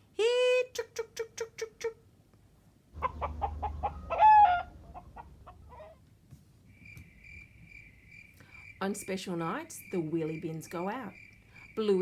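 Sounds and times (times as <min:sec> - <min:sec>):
chicken clucking: 0:03.0 - 0:06.0
chicken squawk: 0:03.0 - 0:06.0
crickets chirping: 0:06.7 - 0:12.0.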